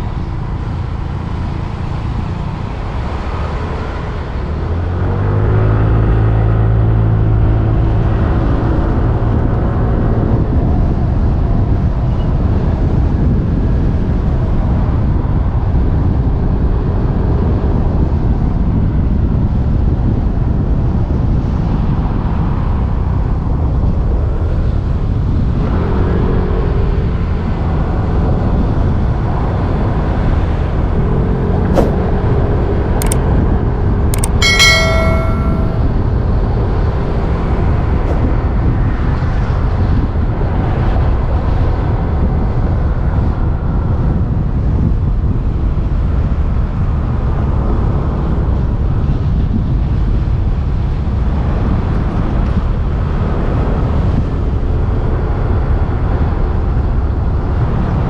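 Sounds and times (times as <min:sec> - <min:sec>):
motorbike engine and road noise: 0:00.0 - 0:58.0
wind rumble on microphone: 0:00.0 - 0:58.0
sharp clicks: 0:34.2 - 0:34.4
high-pitched tone: 0:34.2 - 0:36.2.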